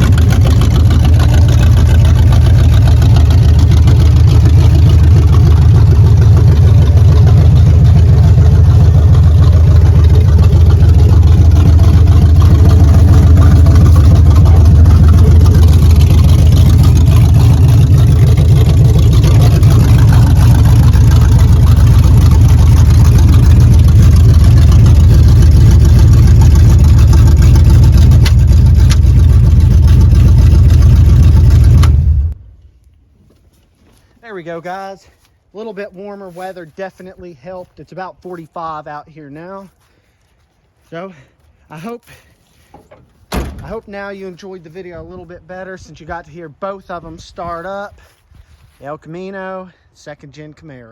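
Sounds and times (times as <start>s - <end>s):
car engine idling: 0.0s - 32.5s.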